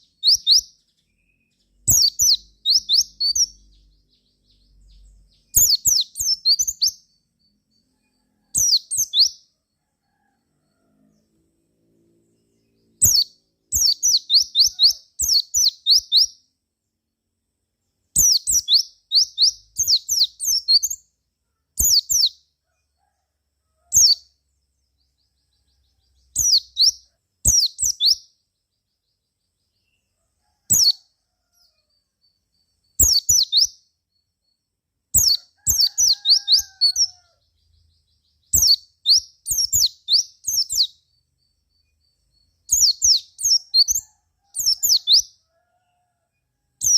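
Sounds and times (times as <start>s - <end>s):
bird singing high chirps: 0.0s - 9.5s, 12.3s - 16.4s, 18.1s - 21.1s, 21.8s - 22.4s, 23.9s - 24.3s, 25.0s - 30.0s, 31.6s - 45.4s.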